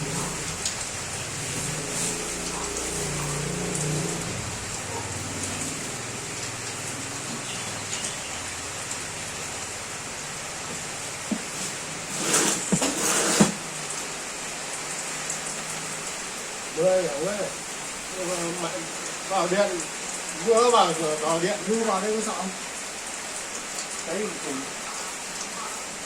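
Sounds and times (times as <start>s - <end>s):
steady hiss: 0.0s - 26.0s
knock: 10.7s - 11.5s
clattering and scraping: 11.3s - 13.6s.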